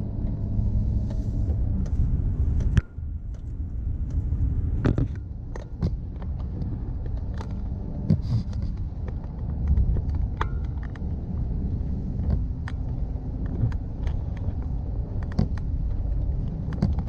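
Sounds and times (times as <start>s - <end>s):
car engine and road noise: 0.0s - 17.0s
clicks and rattles: 4.8s - 17.0s.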